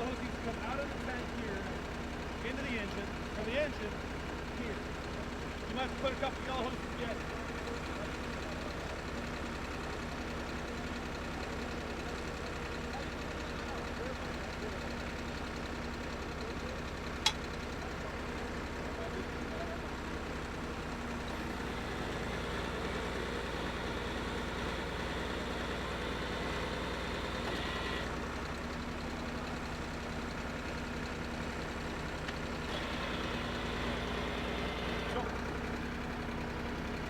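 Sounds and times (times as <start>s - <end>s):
engine idling: 0.0s - 37.0s.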